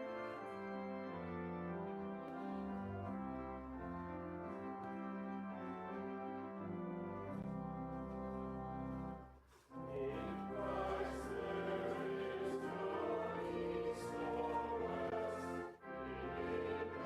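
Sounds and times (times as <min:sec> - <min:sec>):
voices singing a hymn: 0:09.7 - 0:17.0.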